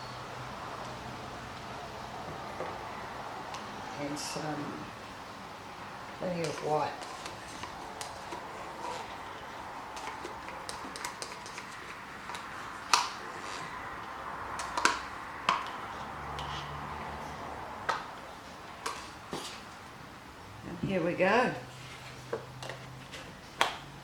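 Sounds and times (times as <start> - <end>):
paint bottles and plastic cup clicking: 9.3 - 13.2.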